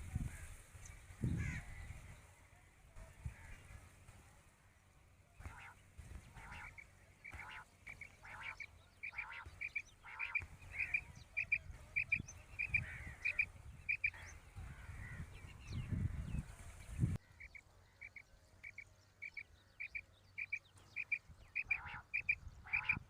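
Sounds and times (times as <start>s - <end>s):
quail calling: 5.4s - 15.3s, 17.2s - 23.0s.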